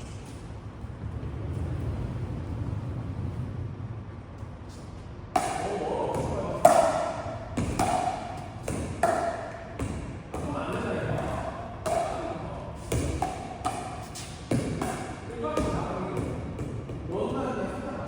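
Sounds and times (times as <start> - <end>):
low steady rumble: 0.0 - 18.0
paddles hitting plastic ball: 5.4 - 17.0.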